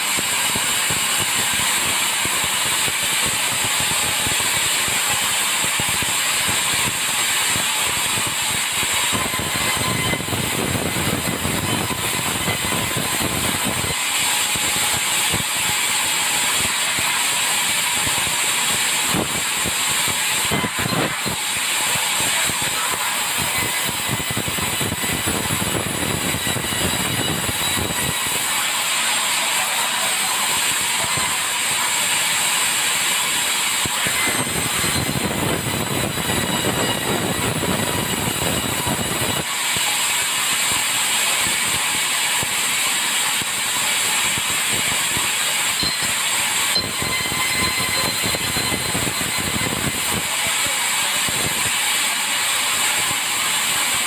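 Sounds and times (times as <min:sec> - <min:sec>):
saw blade cutting timber: 0:00.0 - 0:54.0.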